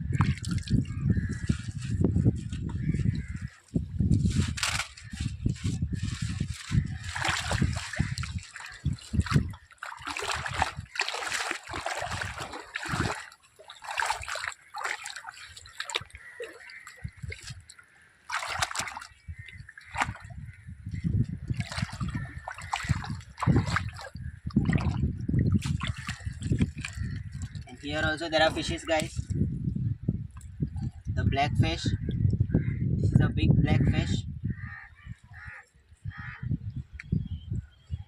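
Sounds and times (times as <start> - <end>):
sea water splashing: 6.5 - 20.4, 21.5 - 29.2.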